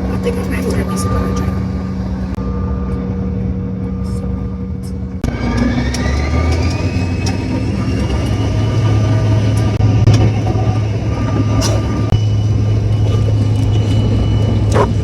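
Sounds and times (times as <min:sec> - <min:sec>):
jet engine whine: 0:00.0 - 0:15.0
low engine rumble: 0:00.0 - 0:15.0.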